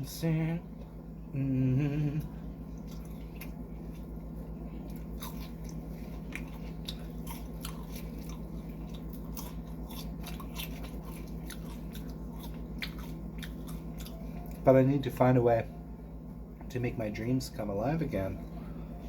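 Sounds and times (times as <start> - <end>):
low hum: 0.0 - 19.0
chewing and biting food: 2.2 - 14.7.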